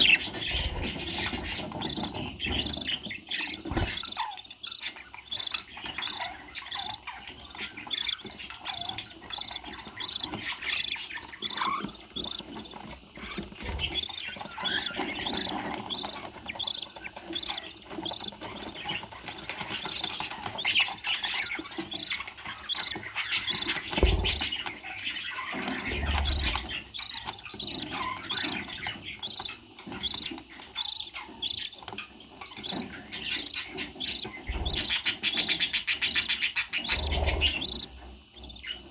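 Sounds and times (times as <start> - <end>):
parrot chirping and squawking: 0.0 - 38.8.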